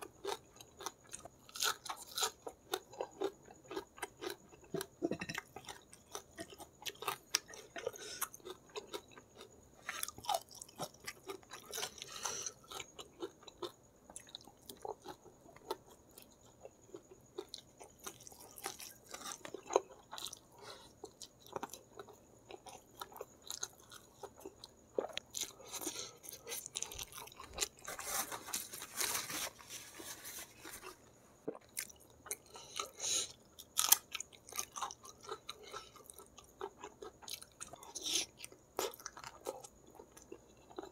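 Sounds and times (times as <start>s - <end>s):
chewing and crunching noodles: 0.0s - 40.9s.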